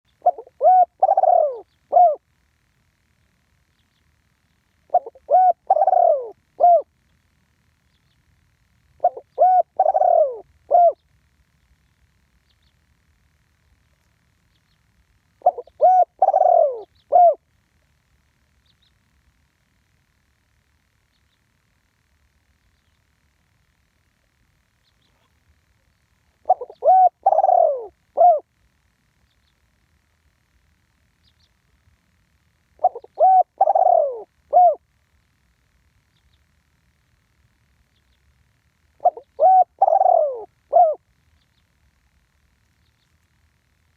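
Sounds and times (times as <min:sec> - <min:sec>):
dove cooing: 0:00.1 - 0:02.3, 0:04.8 - 0:07.0, 0:09.0 - 0:11.0, 0:15.4 - 0:17.5, 0:26.3 - 0:28.5, 0:32.8 - 0:34.9, 0:39.0 - 0:41.1.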